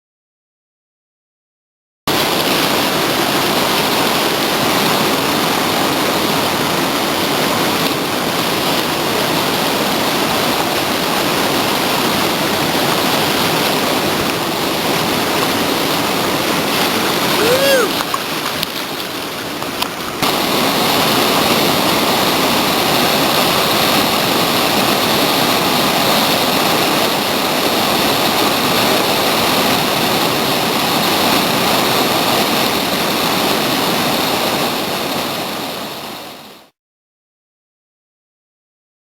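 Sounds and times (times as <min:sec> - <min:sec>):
creek whitewater rushing: 0:02.1 - 0:36.7.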